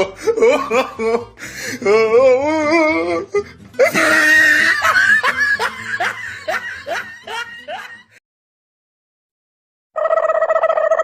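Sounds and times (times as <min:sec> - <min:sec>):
burst of laughing: 0:03.8 - 0:08.2.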